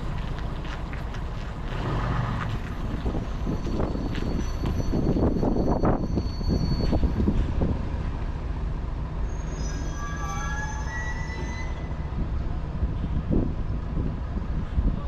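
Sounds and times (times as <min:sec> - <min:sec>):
diesel bus engine rumbling: 0:00.0 - 0:15.0
high squeal: 0:03.4 - 0:07.5, 0:09.2 - 0:12.2.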